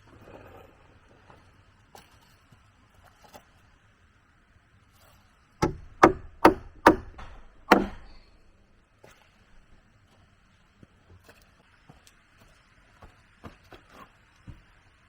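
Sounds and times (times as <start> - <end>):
tool striking wood: 5.6 - 8.4.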